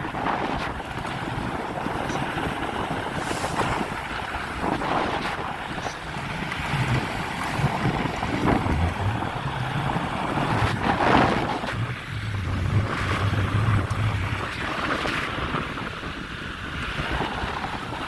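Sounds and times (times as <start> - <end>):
low uneven rumble: 0.0 - 17.8
wind buffeting microphone: 0.0 - 18.0.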